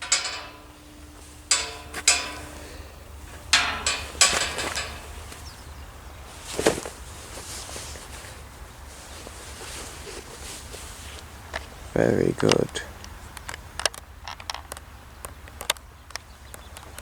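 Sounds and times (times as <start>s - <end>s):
sharp knocks with metallic ring: 0.0s - 5.8s.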